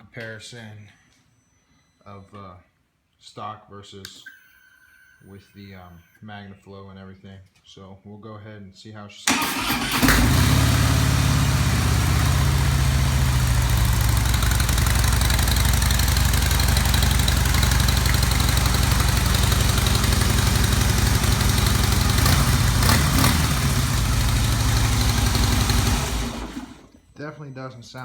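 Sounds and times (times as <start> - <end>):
motorcycle engine idling: 9.8 - 26.8.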